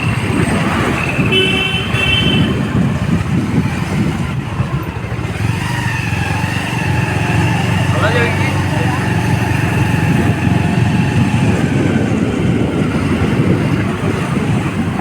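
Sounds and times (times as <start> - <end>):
motorcycle engine rumble: 0.0 - 15.0
wind on microphone: 0.0 - 15.0
vehicle horn: 1.2 - 3.0.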